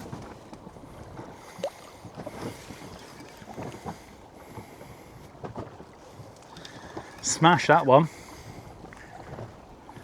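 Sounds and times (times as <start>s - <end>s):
water moving around boat: 0.0s - 10.0s
wind on microphone: 8.1s - 10.0s.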